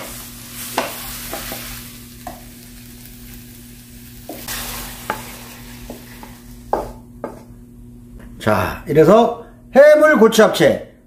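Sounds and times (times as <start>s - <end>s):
food sizzling in frying pan: 0.0s - 7.4s
wooden spoon scraping pan: 4.3s - 7.4s.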